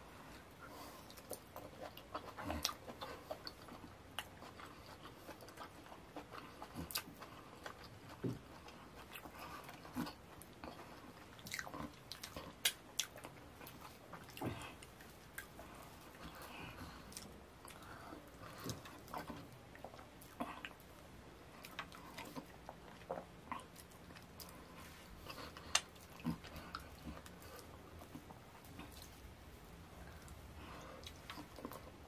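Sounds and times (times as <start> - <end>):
person chewing with wet lip smacks: 0.6 - 32.0.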